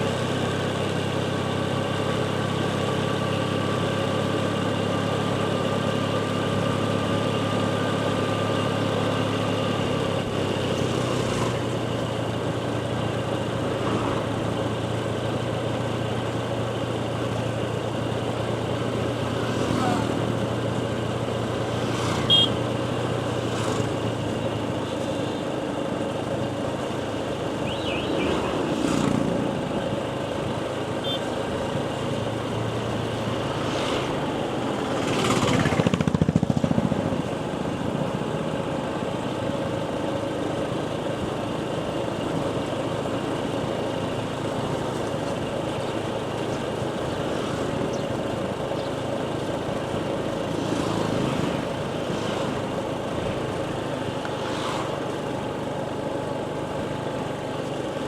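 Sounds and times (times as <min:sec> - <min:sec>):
motorcycle engine running: 0:00.0 - 0:58.0
vehicle passing loudly: 0:19.1 - 0:20.8, 0:21.4 - 0:24.2, 0:27.6 - 0:29.9, 0:32.3 - 0:37.2, 0:54.3 - 0:55.2
short high-pitched beep: 0:27.6 - 0:28.4.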